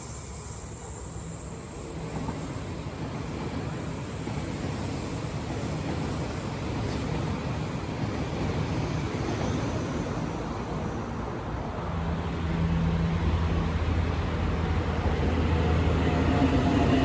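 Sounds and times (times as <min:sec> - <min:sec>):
electric train humming: 0:00.0 - 0:17.0
wind: 0:00.0 - 0:17.0.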